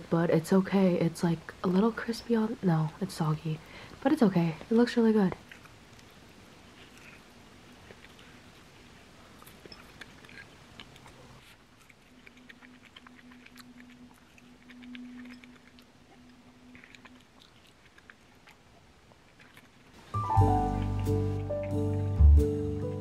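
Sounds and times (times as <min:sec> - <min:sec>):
low steady hum: 0:00.0 - 0:23.0
person chewing food: 0:05.3 - 0:22.4.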